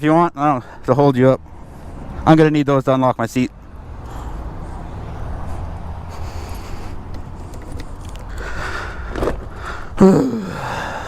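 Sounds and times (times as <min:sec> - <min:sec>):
handling noises scraping and clicking: 0:06.2 - 0:09.6.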